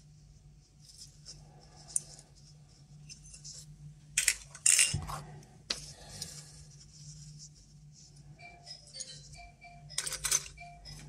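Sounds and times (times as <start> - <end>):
low steady hum: 0.0 - 11.0
metal tubes clinking and rattling: 4.2 - 5.0.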